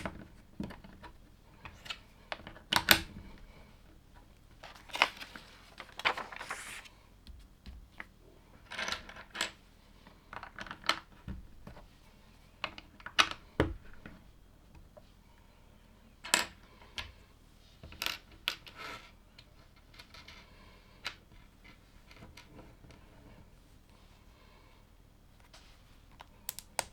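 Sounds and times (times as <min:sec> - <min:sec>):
plastic pieces clicking together: 0:26.2 - 0:26.9.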